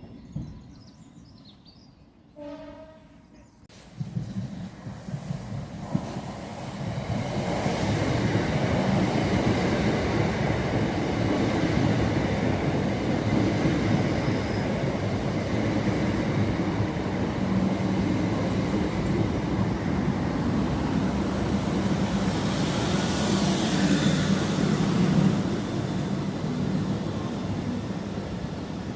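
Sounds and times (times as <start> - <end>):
train rumbling: 2.3 - 28.9.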